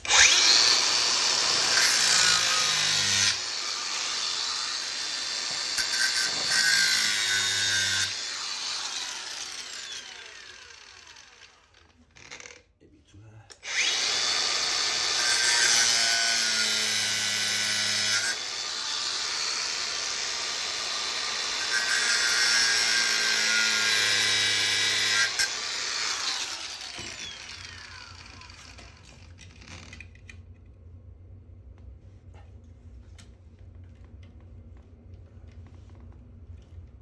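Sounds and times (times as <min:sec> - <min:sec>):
power tool cutting metal: 0:00.0 - 0:12.6, 0:13.6 - 0:30.0
motor winding down: 0:08.3 - 0:12.5, 0:13.6 - 0:14.7, 0:24.2 - 0:29.7.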